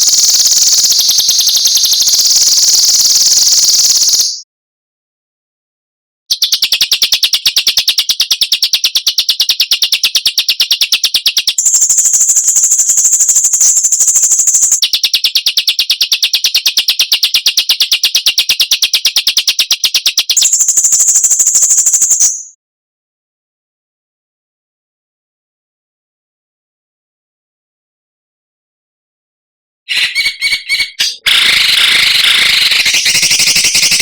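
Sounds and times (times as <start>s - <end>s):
harsh rasping bird calls: 0.0s - 4.4s, 29.9s - 34.0s.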